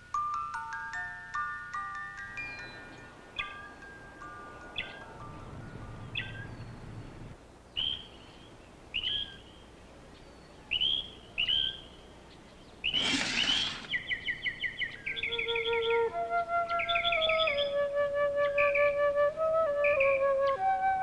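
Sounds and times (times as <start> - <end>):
birds chirping: 1.3 - 21.0
brief rushing noise: 12.9 - 14.1
soft flute music: 14.8 - 21.0.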